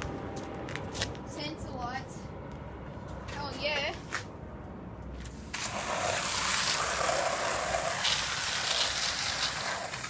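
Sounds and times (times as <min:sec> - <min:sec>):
water spraying: 0:05.3 - 0:10.0.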